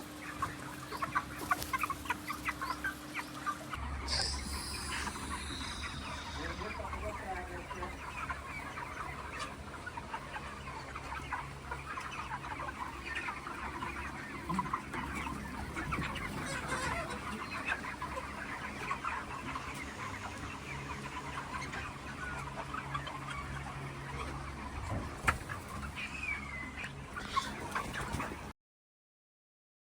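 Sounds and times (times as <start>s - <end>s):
chickens clucking: 0.0s - 28.6s
steady low hum: 3.6s - 13.0s.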